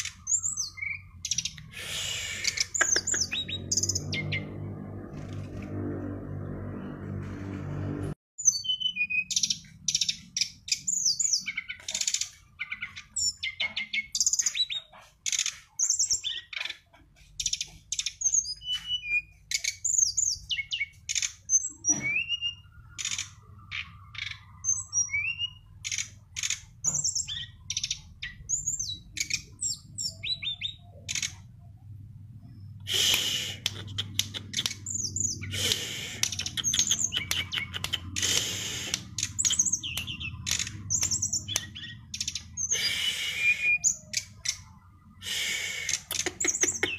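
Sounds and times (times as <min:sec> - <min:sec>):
songbird singing: 0:00.0 - 0:05.4, 0:08.4 - 0:46.9.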